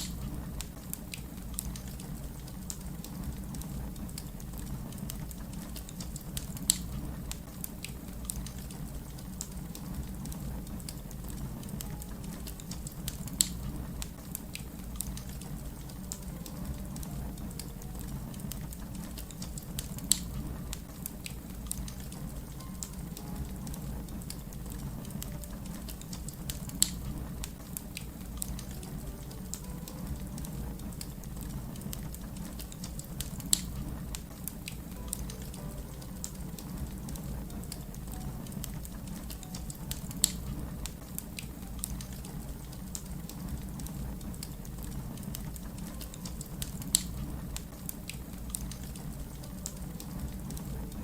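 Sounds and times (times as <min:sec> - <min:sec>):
sharp fire pops: 0:00.0 - 0:17.7, 0:18.3 - 0:29.7, 0:30.4 - 0:35.5
wood fire crackling: 0:00.0 - 0:51.0.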